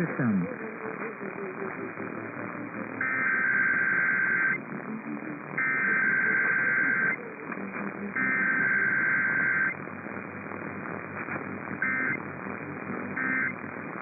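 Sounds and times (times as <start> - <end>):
radio static hiss: 0.0 - 14.0
buzzy digital data tones: 3.0 - 4.6, 5.6 - 7.2, 8.2 - 9.8, 11.8 - 12.2, 13.2 - 13.6.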